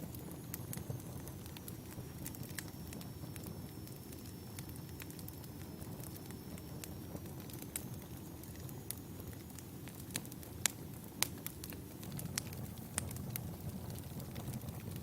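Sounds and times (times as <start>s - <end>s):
fire crackling and popping: 0.0s - 15.0s
low rumble of flames: 0.0s - 15.0s.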